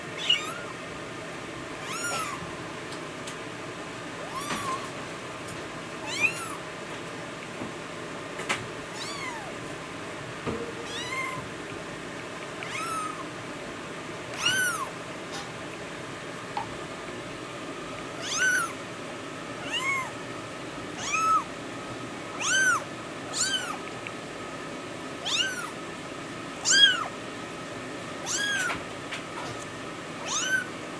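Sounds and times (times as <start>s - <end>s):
kitten meowing: 0.2s - 0.8s, 1.8s - 2.4s, 4.2s - 5.0s, 6.0s - 6.6s, 9.0s - 9.6s, 10.8s - 11.5s, 12.6s - 13.2s, 14.4s - 14.9s, 18.2s - 18.8s, 19.6s - 20.2s, 21.0s - 21.5s, 22.3s - 23.8s, 25.2s - 25.8s, 26.6s - 27.1s, 28.2s - 28.8s, 30.2s - 30.7s.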